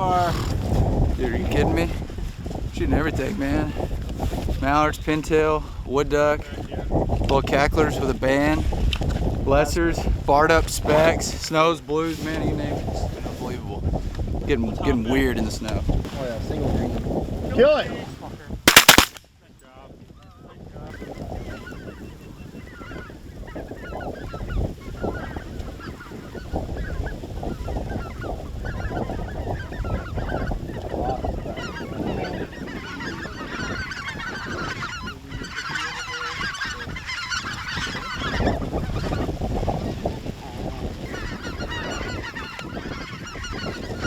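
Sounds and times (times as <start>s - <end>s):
geese honking: 31.4s - 39.4s, 41.0s - 44.0s.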